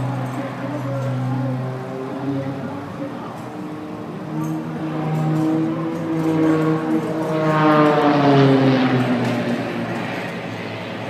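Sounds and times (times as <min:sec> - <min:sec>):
propeller plane flying past: 0:00.0 - 0:11.0.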